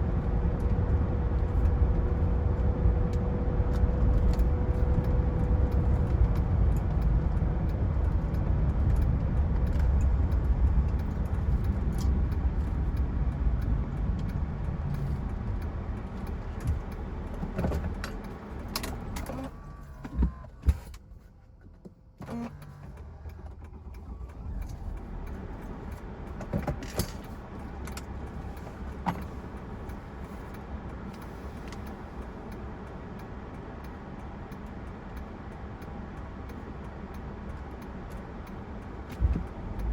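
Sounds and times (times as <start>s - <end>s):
diesel car engine driving: 0.0s - 39.9s.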